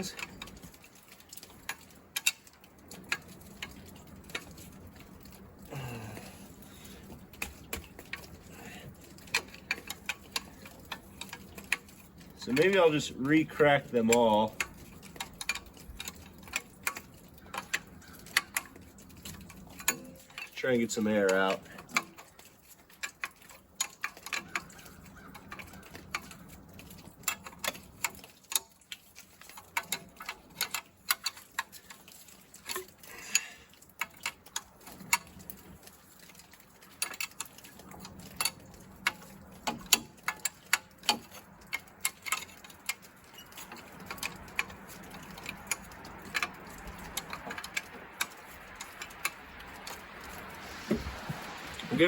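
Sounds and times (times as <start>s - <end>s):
soft steady hiss: 0.0s - 14.8s.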